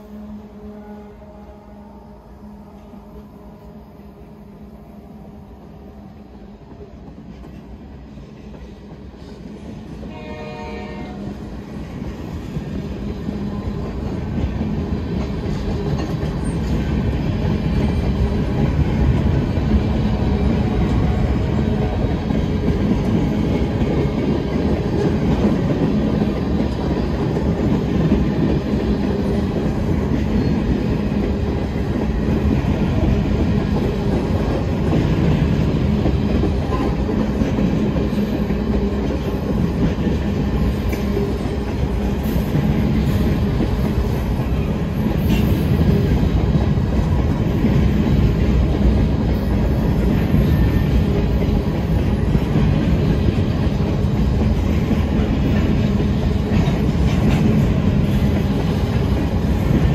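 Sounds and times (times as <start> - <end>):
train horn blast: 0.0 - 3.9, 10.1 - 11.4
freight train passing: 0.0 - 59.9.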